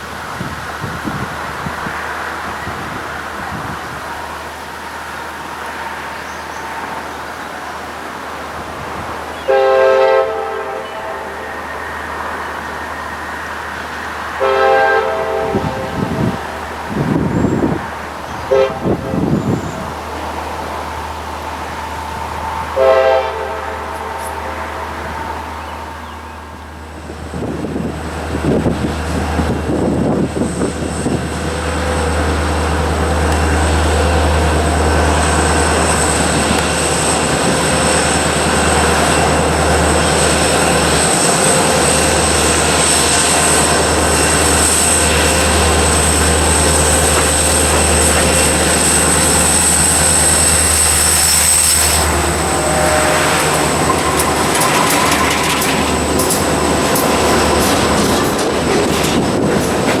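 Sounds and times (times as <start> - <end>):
freight train wheels rumbling: 0.0 - 60.0
wheels clicking over rail joints: 27.3 - 60.0
high-pitched wheel squeal: 35.2 - 58.0.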